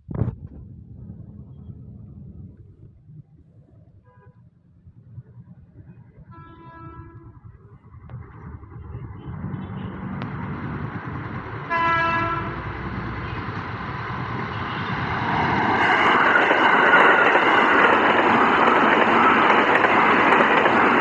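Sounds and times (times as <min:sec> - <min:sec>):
train running noise: 0:05.2 - 0:21.0
train horn blast: 0:06.3 - 0:07.4, 0:11.7 - 0:13.5.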